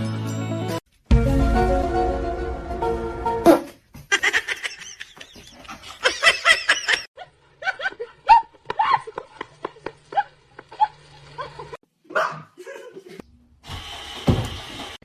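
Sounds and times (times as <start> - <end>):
laughter with high squeals: 4.1 - 11.8.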